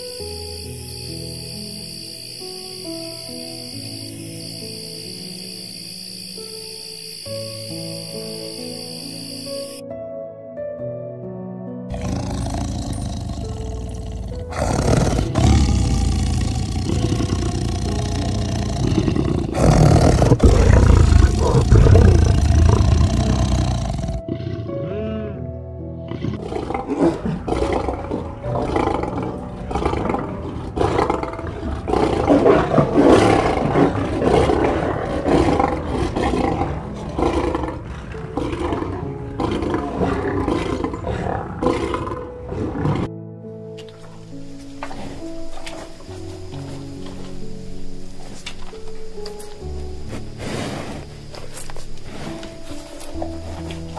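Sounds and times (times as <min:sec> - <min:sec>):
soft background music: 0:00.0 - 0:53.9
lions growling and roaring: 0:11.9 - 0:24.8, 0:26.1 - 0:43.1, 0:50.0 - 0:53.9.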